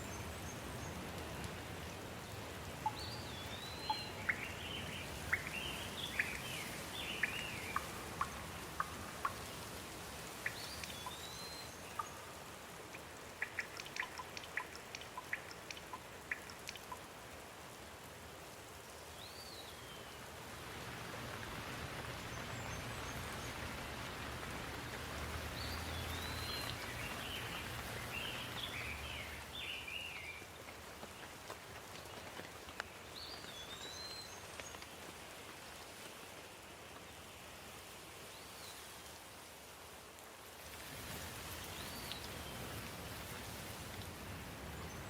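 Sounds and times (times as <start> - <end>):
rain falling: 0.0 - 45.0
bird chirping: 2.8 - 9.4, 10.4 - 12.4, 13.4 - 17.0, 25.5 - 30.4.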